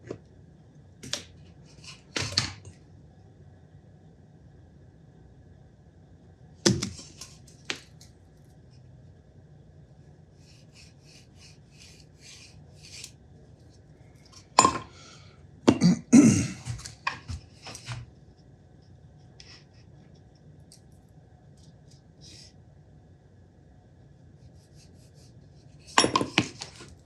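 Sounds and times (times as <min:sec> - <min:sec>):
light scratching strokes: 0:10.4 - 0:13.8, 0:24.4 - 0:26.0
tools knocking and clattering: 0:14.4 - 0:14.9, 0:25.9 - 0:26.9.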